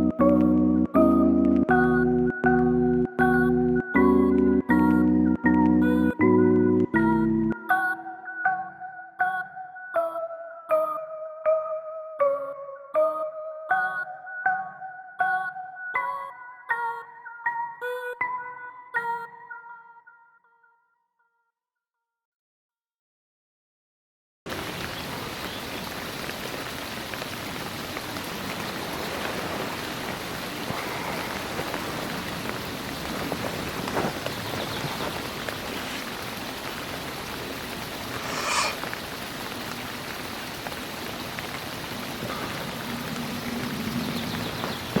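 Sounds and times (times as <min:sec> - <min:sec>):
steady rain falling: 0:00.0 - 0:07.6, 0:24.5 - 0:45.0.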